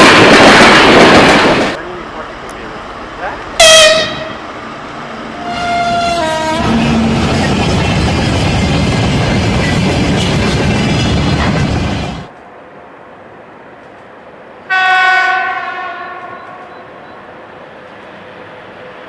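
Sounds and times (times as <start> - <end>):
train passing rumble: 0.0 - 19.0
locomotive horn: 3.6 - 4.4, 5.4 - 7.2, 14.7 - 16.8.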